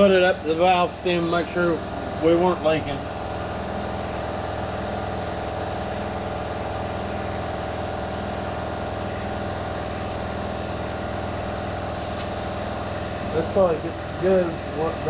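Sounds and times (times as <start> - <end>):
motor humming: 3.0 - 14.9.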